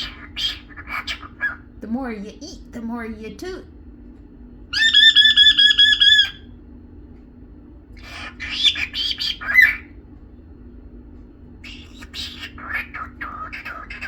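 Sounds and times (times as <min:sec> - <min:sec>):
cockatiel scratchy chatter: 0:00.0 - 0:01.7, 0:04.8 - 0:06.4, 0:08.0 - 0:09.9, 0:11.6 - 0:14.0
cockatiel whistling: 0:04.8 - 0:06.5, 0:08.0 - 0:09.9, 0:11.6 - 0:14.0.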